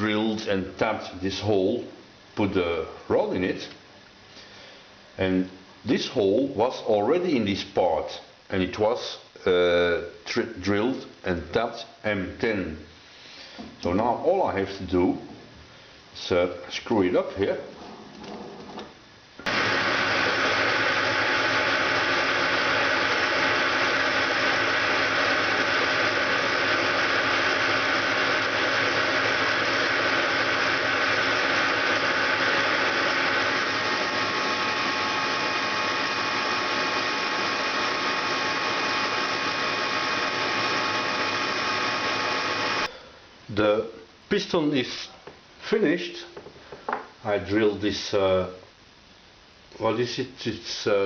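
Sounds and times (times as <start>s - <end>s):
metal lathe cutting: 19.5s - 42.9s.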